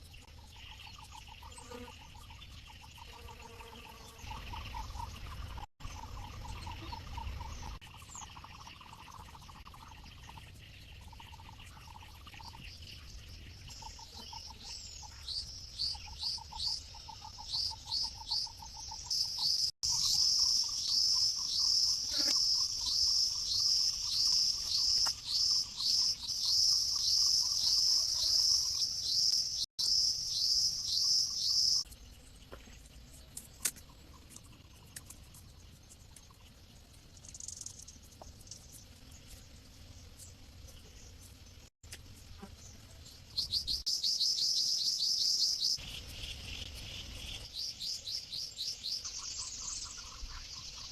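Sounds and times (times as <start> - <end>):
bird chirping: 0.0 - 41.6, 42.3 - 50.9.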